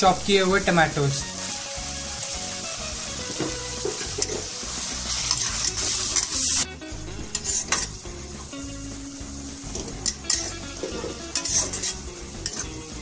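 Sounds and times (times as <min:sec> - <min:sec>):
onions sizzling in hot oil: 0:00.0 - 0:13.0
metal spatula scraping: 0:03.4 - 0:08.0, 0:09.8 - 0:12.8.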